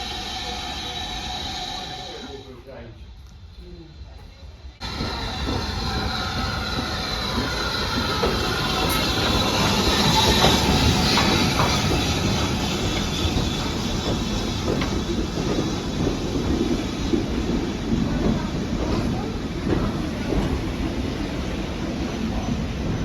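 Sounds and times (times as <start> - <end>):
high wheel squeal: 4.8 - 17.9
train wheels clattering on track: 4.8 - 23.0.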